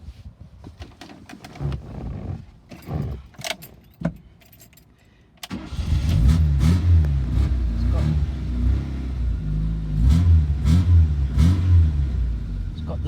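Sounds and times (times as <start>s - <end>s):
car keys jangling: 2.6s - 6.1s.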